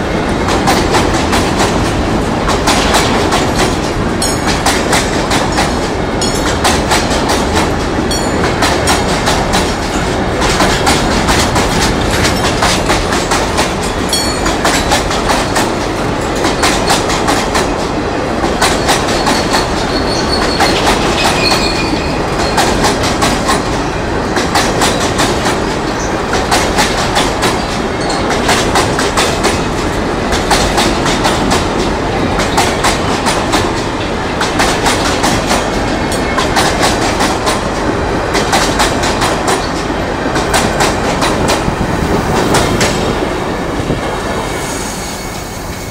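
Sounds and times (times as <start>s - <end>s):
wheels clattering over rail joints: 0.5s - 41.8s
high wheel squeal: 18.9s - 22.7s, 44.4s - 45.9s.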